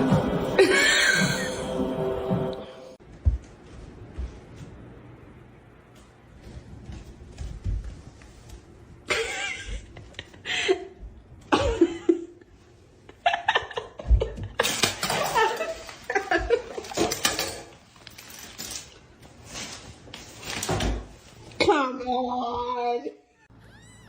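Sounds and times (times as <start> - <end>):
human laughter: 0.6 - 1.7, 9.1 - 12.4.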